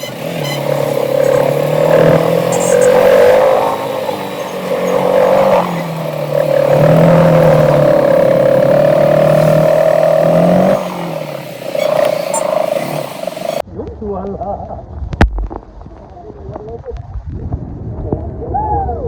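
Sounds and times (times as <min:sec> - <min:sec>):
motorcycle engine drone: 0:00.0 - 0:13.6.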